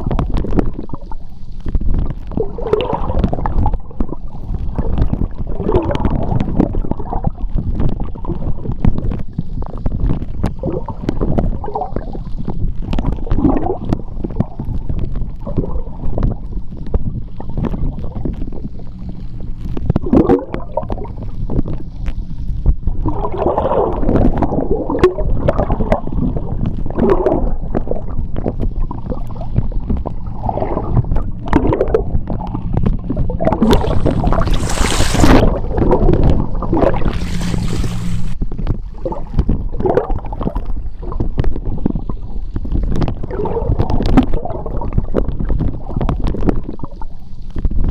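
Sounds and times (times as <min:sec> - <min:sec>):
underwater rumble of moving water: 0:00.0 - 0:47.8
bubbling and gurgling: 0:12.9 - 0:38.4, 0:43.1 - 0:47.2.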